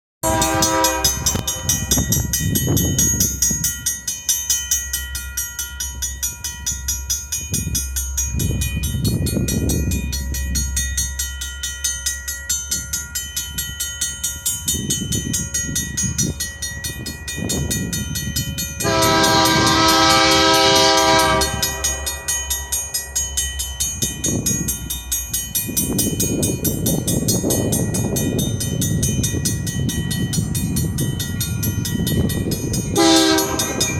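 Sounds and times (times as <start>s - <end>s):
train horn: 0.2s - 1.8s, 18.8s - 22.2s, 33.0s - 33.9s
train rumble and wheel clacking: 0.2s - 33.9s.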